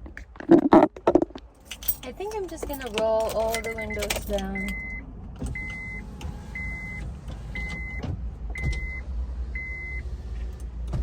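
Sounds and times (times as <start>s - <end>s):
car warning chime beeping: 3.3s - 10.1s.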